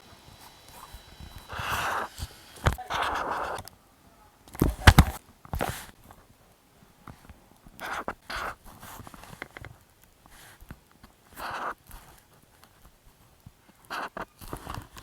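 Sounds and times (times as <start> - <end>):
pen scratching on paper: 1.5 - 3.6.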